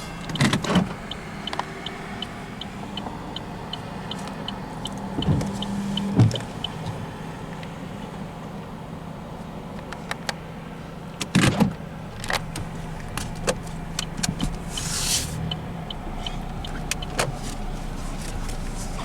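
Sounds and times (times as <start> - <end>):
vehicle engine humming: 0.0 - 19.0
short hiss: 14.6 - 15.4.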